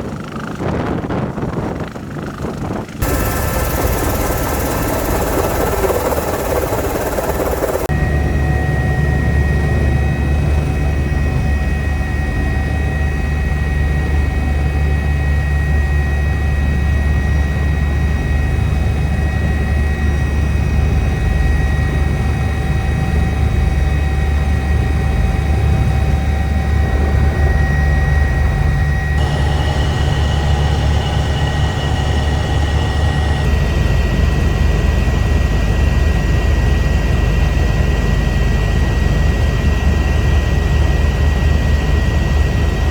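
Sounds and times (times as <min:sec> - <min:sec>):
helicopter rotor drone: 0:00.0 - 0:42.9
turbine whine: 0:03.0 - 0:12.9, 0:22.8 - 0:36.9.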